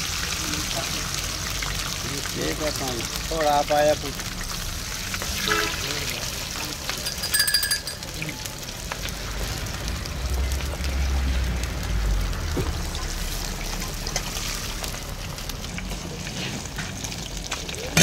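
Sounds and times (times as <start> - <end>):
patties sizzling in hot oil: 0.0 - 18.0
short metallic ring: 7.0 - 8.0.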